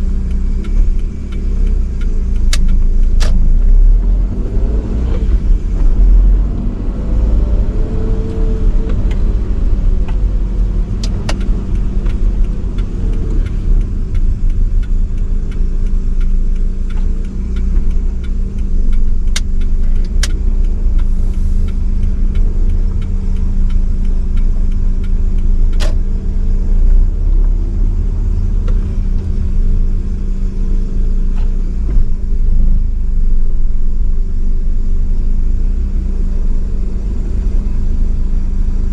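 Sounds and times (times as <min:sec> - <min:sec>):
car engine hum: 0:00.0 - 0:38.9
low road rumble: 0:00.0 - 0:38.9.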